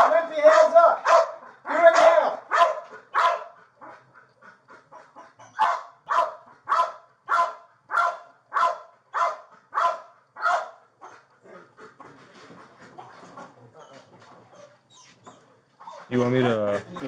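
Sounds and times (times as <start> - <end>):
dog barking: 0.0 - 4.0, 5.4 - 11.2.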